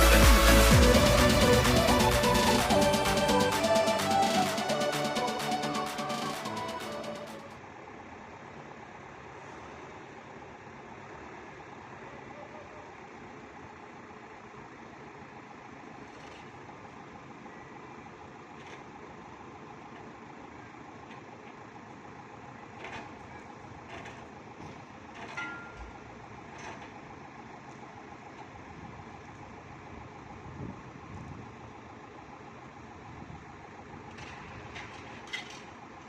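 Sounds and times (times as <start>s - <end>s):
truck diesel engine running: 0.0s - 12.3s, 12.9s - 36.0s
sharp metal clanks: 25.2s - 26.0s.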